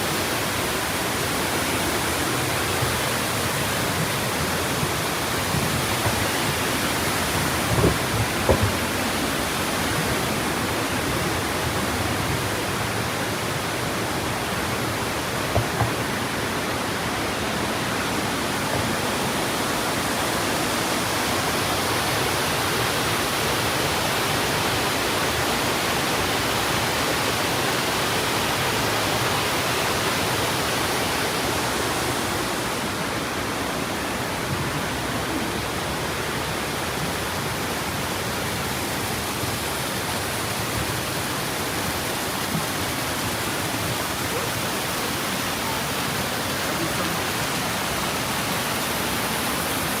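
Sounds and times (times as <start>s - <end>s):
waterfall rushing: 0.0s - 50.0s
low thumps: 4.0s - 10.2s.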